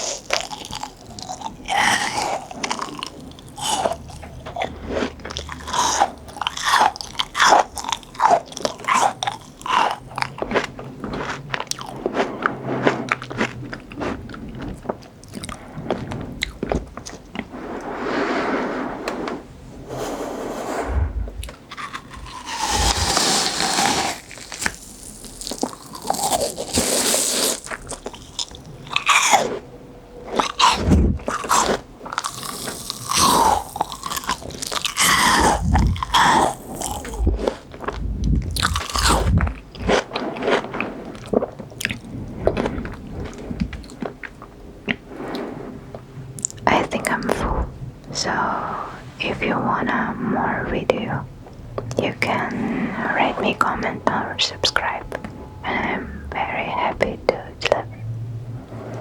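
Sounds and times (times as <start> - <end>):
wet chewing: 0.0 - 17.5, 20.8 - 29.7, 30.3 - 45.0
biting crunchy fruit: 21.7 - 29.6, 30.4 - 42.0.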